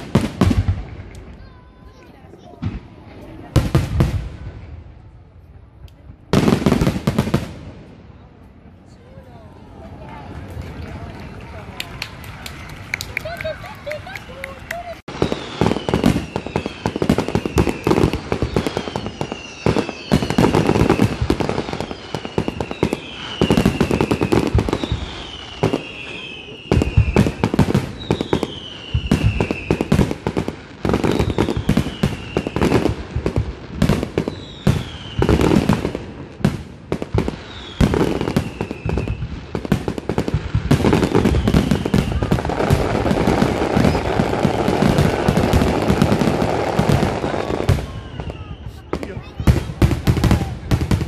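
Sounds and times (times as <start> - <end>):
fireworks bangs and crackle: 0.0 - 51.0
falling firework whistle: 15.1 - 30.1, 31.0 - 33.0, 34.2 - 35.8, 37.3 - 39.4, 40.7 - 50.6.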